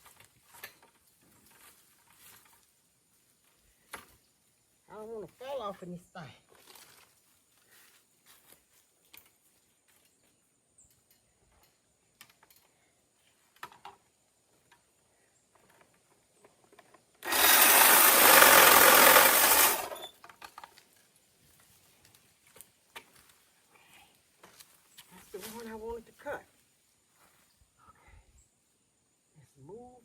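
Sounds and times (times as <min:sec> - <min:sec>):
rustling: 0:00.0 - 0:04.4, 0:06.4 - 0:10.2, 0:12.3 - 0:27.6
power saw cutting branch: 0:17.2 - 0:20.1.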